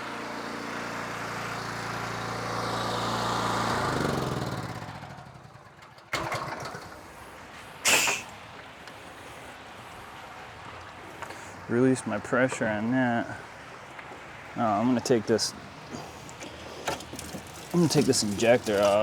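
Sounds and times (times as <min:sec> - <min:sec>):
pressure washer engine running: 0:00.0 - 0:07.3, 0:16.0 - 0:19.0
loud burst of hiss: 0:07.8 - 0:08.4.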